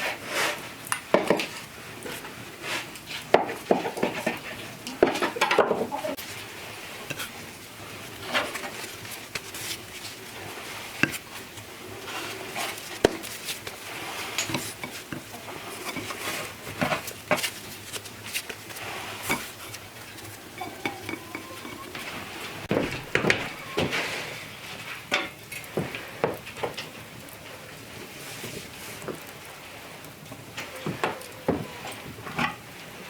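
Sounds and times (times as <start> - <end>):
cookware clinking and scraping: 0.0 - 25.7.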